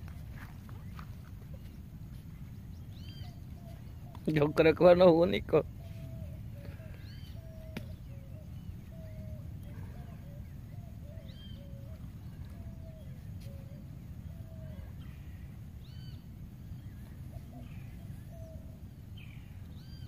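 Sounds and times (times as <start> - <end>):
steady low rumble: 0.0 - 4.2.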